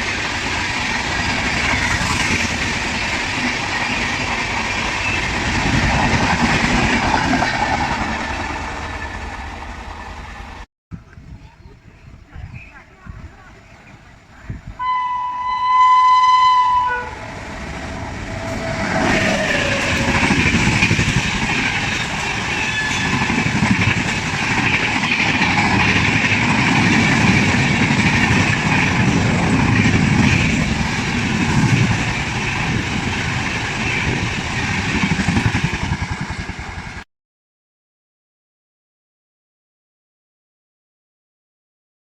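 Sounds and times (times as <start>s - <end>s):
train passing at speed: 0.0s - 10.7s, 13.0s - 37.0s
locomotive horn blast: 14.8s - 20.2s.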